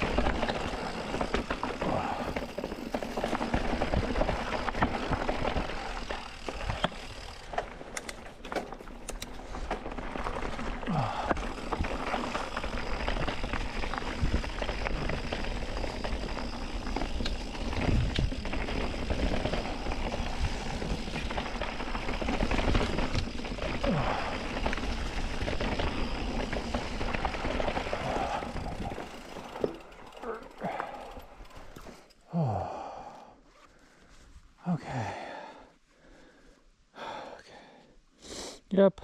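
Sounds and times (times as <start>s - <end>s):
bike clicks and rattles: 0.0s - 32.2s
bike tyres on rocky trail: 0.0s - 37.8s.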